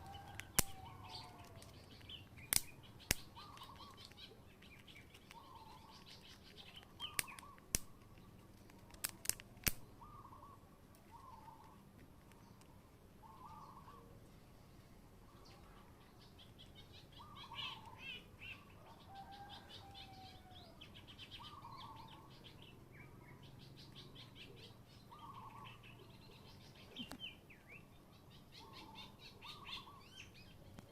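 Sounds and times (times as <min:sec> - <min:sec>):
bird chirping: 0:00.0 - 0:08.7, 0:09.8 - 0:14.2, 0:15.2 - 0:30.9
low bird call: 0:09.8 - 0:11.8, 0:13.2 - 0:14.2.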